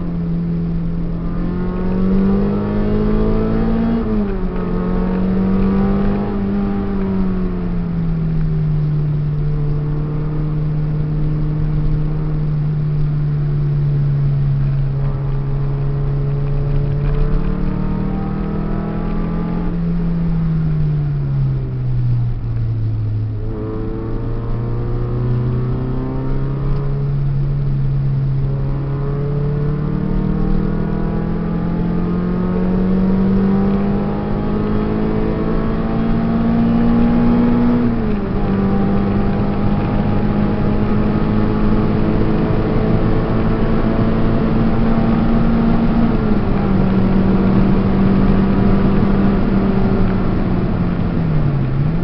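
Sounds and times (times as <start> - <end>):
car engine revving: 0.0 - 52.0
road noise: 0.0 - 52.0.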